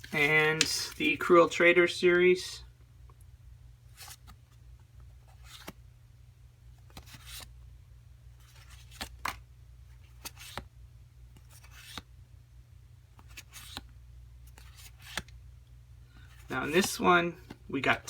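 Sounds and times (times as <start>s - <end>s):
trading cards sliding and tapping: 16.3s - 18.0s.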